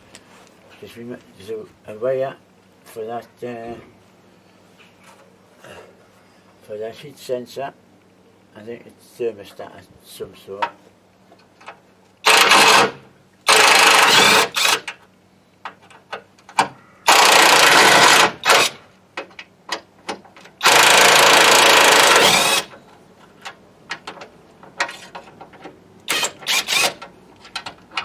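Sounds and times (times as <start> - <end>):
power tool undoing bolts: 12.2 - 15.0, 16.5 - 18.8, 20.1 - 22.8, 24.8 - 28.0
small clicks and knocks: 19.2 - 20.6, 22.7 - 28.0.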